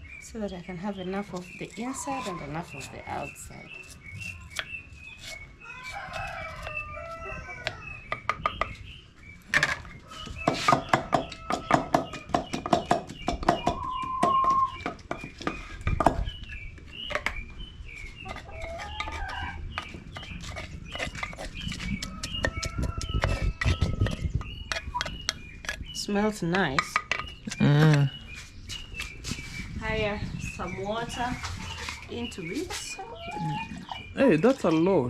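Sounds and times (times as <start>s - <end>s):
chickens clucking: 1.0s - 4.6s, 5.2s - 35.0s
wooden pestle pounding in mortar: 10.4s - 16.3s, 19.8s - 25.8s.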